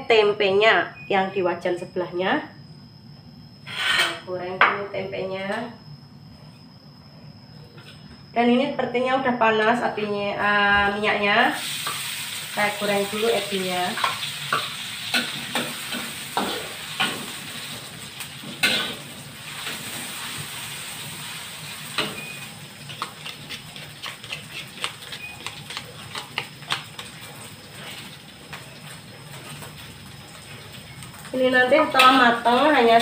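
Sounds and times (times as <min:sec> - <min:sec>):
shrimp sizzling in hot oil: 0:11.5 - 0:33.0.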